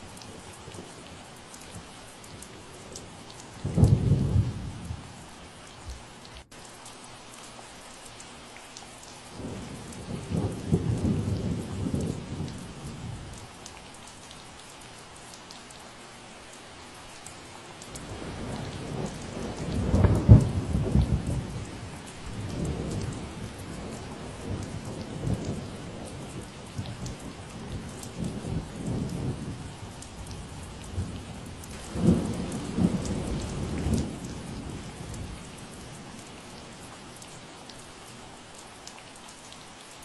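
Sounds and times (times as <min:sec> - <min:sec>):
rain falling: 0:00.0 - 0:40.0
thunder rumbling: 0:03.6 - 0:05.1, 0:09.4 - 0:13.4, 0:18.0 - 0:36.8.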